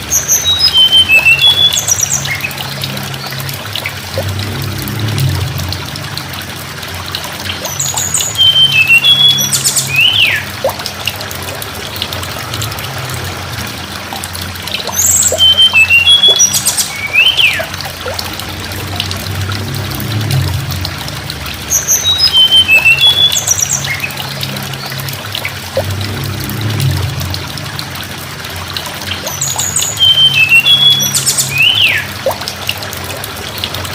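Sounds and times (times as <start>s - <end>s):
steady low hum: 2.2s - 8.4s, 23.8s - 29.4s.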